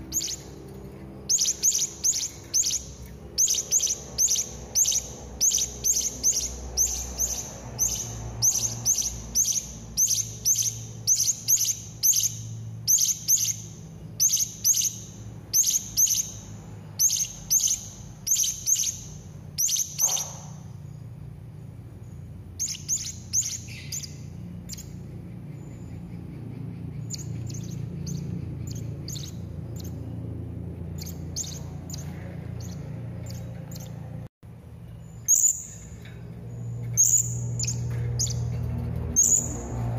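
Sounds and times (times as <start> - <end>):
parrot shrill chirps: 1.3 - 20.7.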